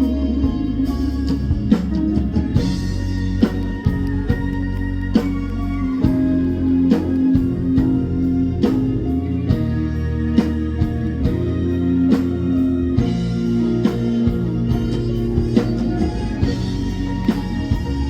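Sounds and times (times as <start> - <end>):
band playing a ballad: 0.0 - 18.0
guitar: 0.0 - 18.0
steady drum beat: 0.0 - 18.0.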